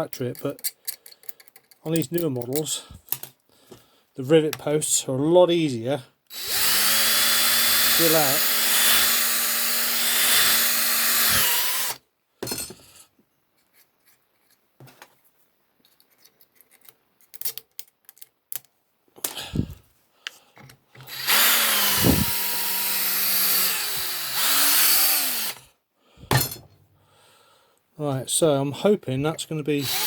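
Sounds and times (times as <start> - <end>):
small power drill drilling metal: 6.3 - 12.0, 21.0 - 25.7, 29.8 - 30.0.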